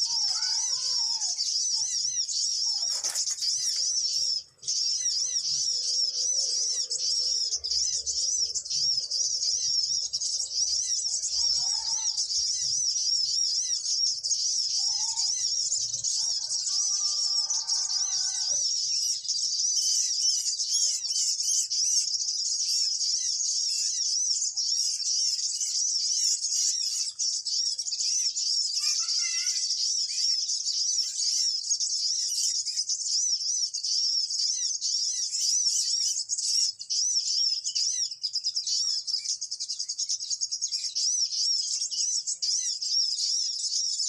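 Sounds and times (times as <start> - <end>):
high-pitched bird chirping: 0.0 - 44.0.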